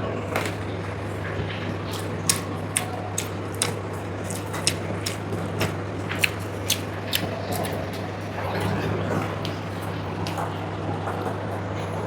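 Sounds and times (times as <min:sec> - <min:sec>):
steady low hum: 0:00.0 - 0:12.0
person chewing and smacking: 0:01.5 - 0:10.3.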